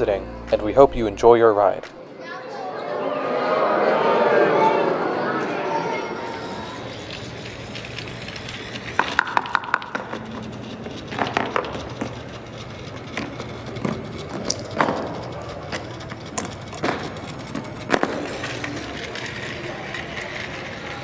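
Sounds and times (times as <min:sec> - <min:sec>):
dominoes clicking and clattering: 0:06.8 - 0:21.0.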